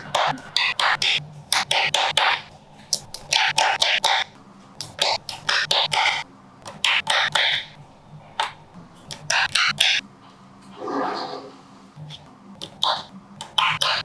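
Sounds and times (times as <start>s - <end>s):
magnetic balls clicking together: 0.0s - 7.8s, 8.4s - 10.0s, 12.0s - 14.0s.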